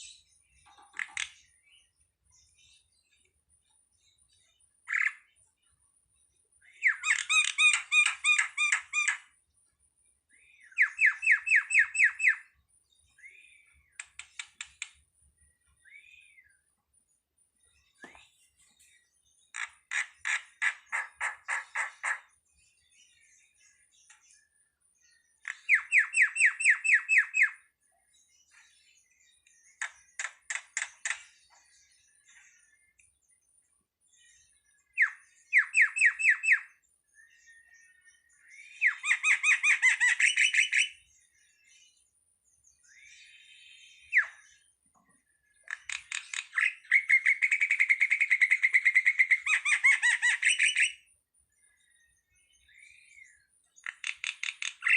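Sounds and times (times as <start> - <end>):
starling calling: 6.8 - 9.3, 10.7 - 12.6, 19.5 - 22.3, 25.4 - 27.6, 35.0 - 36.7, 38.8 - 41.0, 45.6 - 51.1, 53.2 - 54.9
rapid bird clicks: 53.8 - 54.9
starling harsh rasping calls: 53.8 - 54.9.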